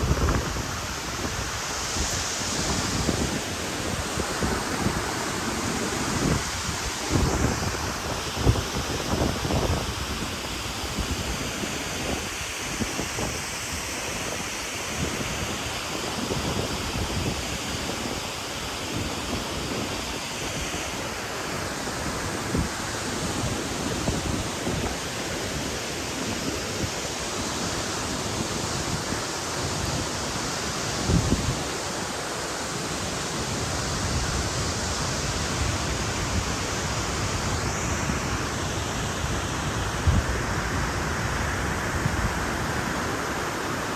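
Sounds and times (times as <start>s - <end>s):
wind buffeting microphone: 0.0s - 13.5s, 22.2s - 31.8s, 33.9s - 43.5s
waterfall rushing: 0.0s - 43.9s.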